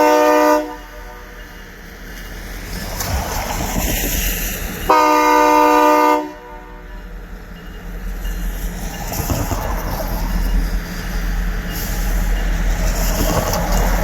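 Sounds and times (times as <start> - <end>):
locomotive air horn blast: 0.0 - 1.4, 4.9 - 6.8
rumble of locomotive and train: 0.0 - 14.0.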